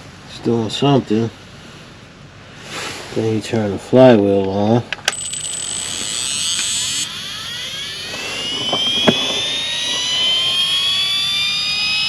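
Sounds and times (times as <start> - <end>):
flywheel electric whine rising: 5.1 - 12.0.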